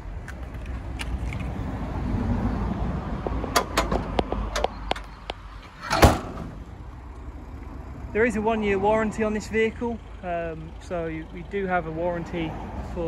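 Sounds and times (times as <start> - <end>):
diesel engine idling: 2.9 - 13.0
loud thump: 5.8 - 6.6.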